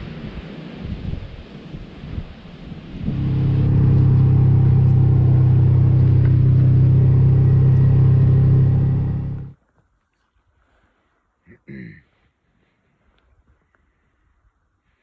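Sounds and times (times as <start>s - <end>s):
vehicle engine running: 3.0s - 9.6s.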